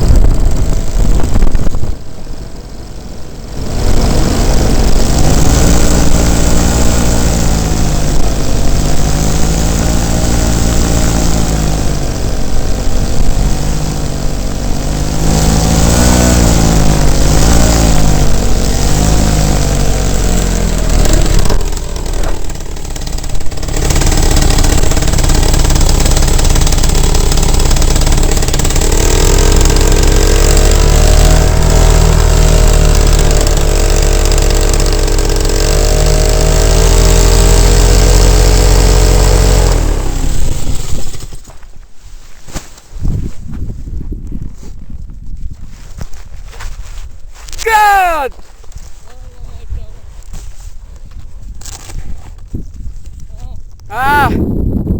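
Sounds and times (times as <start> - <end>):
paramotor engine and propeller: 0.0 - 41.6.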